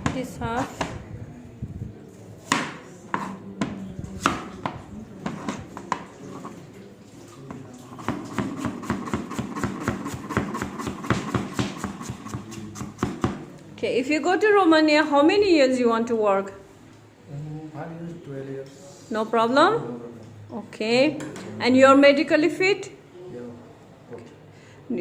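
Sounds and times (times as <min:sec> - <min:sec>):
knife chopping on cutting board: 0:02.5 - 0:06.1, 0:08.0 - 0:13.4.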